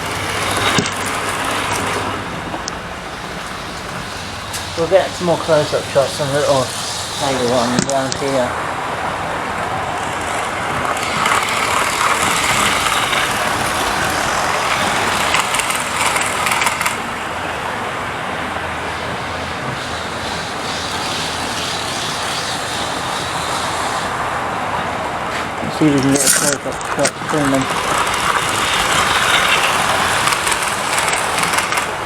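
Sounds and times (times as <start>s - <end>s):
model trains whirring on track: 0.0s - 32.0s
quick clicks: 26.0s - 32.0s.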